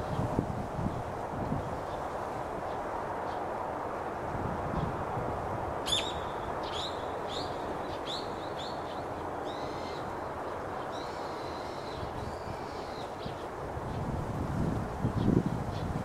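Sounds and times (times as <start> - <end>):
bird calling: 5.9 - 10.2.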